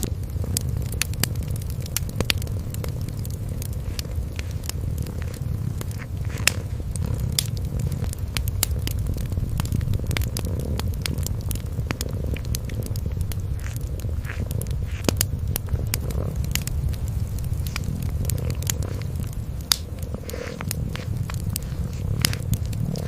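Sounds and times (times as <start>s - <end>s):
fireplace fire crackling: 0.0s - 23.0s
kitten purring: 0.0s - 23.0s.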